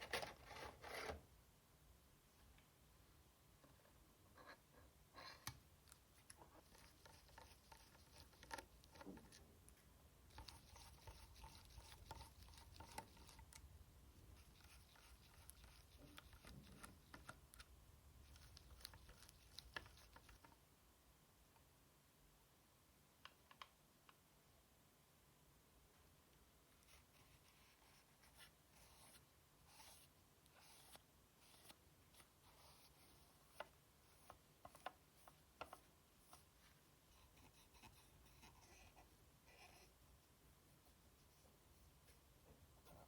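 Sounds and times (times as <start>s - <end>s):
scratchy rubbing: 0.0s - 1.2s, 6.4s - 9.4s, 10.3s - 13.5s, 14.3s - 17.4s, 26.8s - 35.4s
small clicks and taps: 23.2s - 24.2s.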